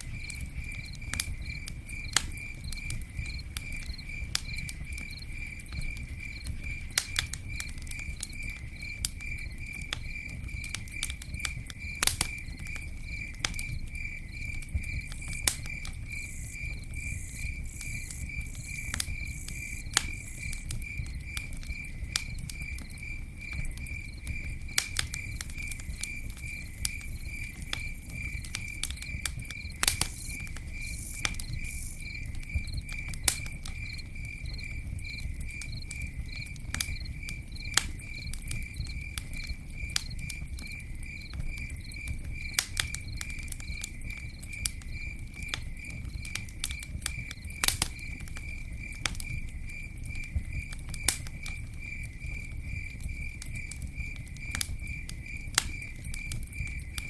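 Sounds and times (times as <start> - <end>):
campfire crackling and popping: 0.0 - 57.0
cricket chirping: 0.0 - 57.0.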